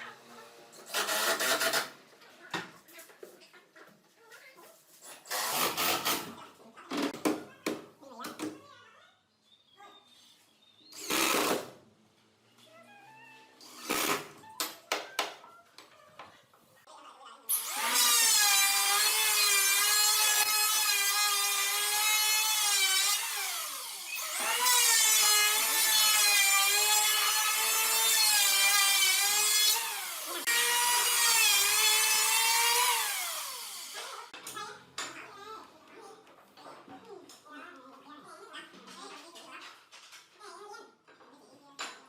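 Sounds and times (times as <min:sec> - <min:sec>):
power tool motor whine: 0:26.6 - 0:34.1.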